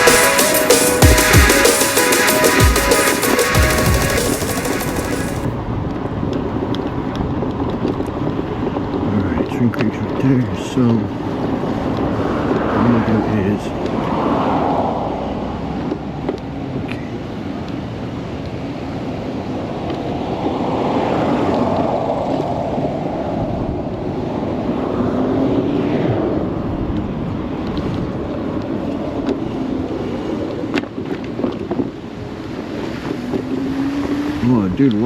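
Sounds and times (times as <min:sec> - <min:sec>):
wind rushing over microphone: 0:05.6 - 0:16.7, 0:18.7 - 0:35.0.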